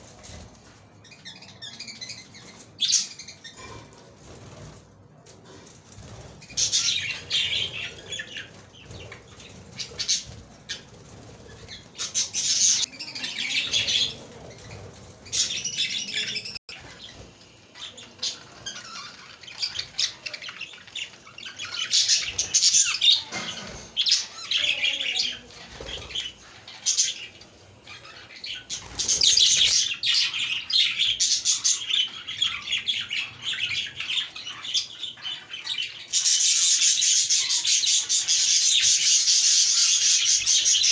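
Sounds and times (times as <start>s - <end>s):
budgerigars chattering and squawking: 6.0s - 40.9s.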